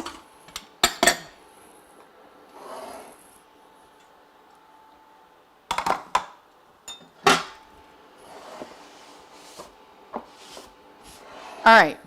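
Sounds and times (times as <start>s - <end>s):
dishes and utensils knocking: 0.8s - 1.4s, 6.9s - 7.6s.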